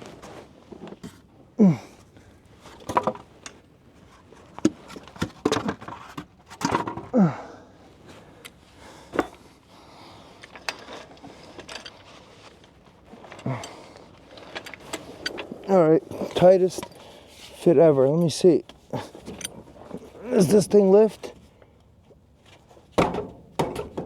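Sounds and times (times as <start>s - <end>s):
man grunting with effort: 1.6s - 2.0s, 7.1s - 7.7s.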